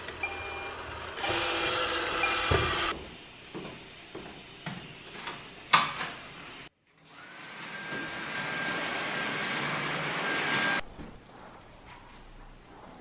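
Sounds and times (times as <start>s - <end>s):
vacuum cleaner running: 0.0s - 5.2s, 7.1s - 10.8s.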